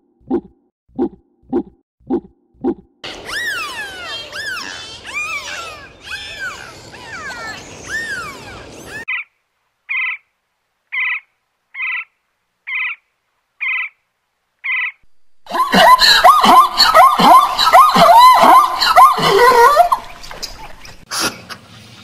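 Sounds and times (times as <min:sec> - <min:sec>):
woodpecker call: 0:03.0 - 0:09.3, 0:09.9 - 0:10.2, 0:10.9 - 0:12.1, 0:12.7 - 0:13.0, 0:13.6 - 0:14.0, 0:14.6 - 0:15.0
dolphin whistles: 0:03.1 - 0:09.1.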